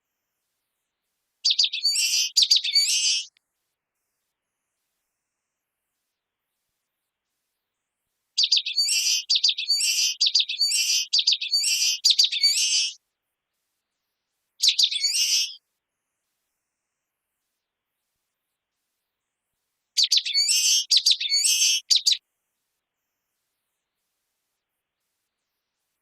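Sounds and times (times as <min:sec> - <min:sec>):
bird singing: 0:01.4 - 0:03.3, 0:08.4 - 0:13.0, 0:14.6 - 0:15.6, 0:20.0 - 0:22.2.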